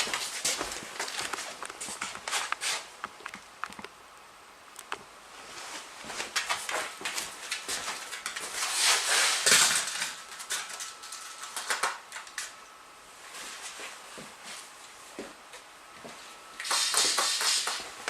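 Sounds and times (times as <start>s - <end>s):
rustling scuffle: 0.0s - 2.9s, 5.4s - 10.2s
dog claws clicking on hard floor: 16.6s - 17.9s.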